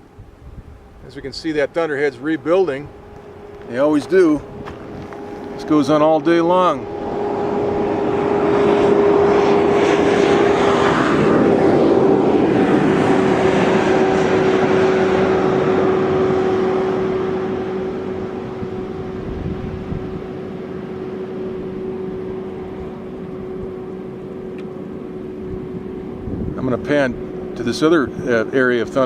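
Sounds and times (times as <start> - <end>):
motor droning past: 0.0 - 29.0.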